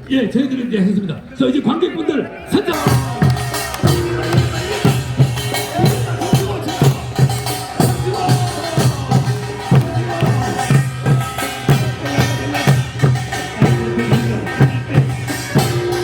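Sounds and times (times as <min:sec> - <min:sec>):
held melodic tones: 0:02.6 - 0:16.0
folk drum strokes: 0:02.7 - 0:16.0.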